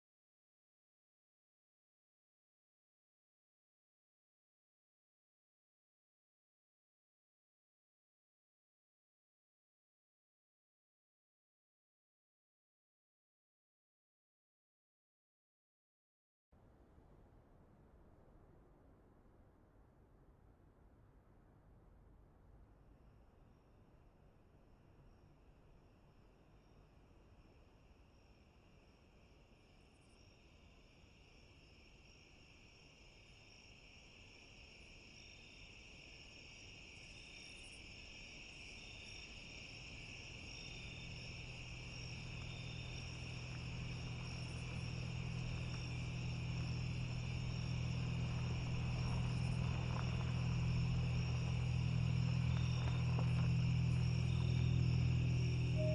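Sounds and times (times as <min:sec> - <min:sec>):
crickets chirring: 0:24.7 - 0:55.9
low steady hum: 0:40.0 - 0:55.9.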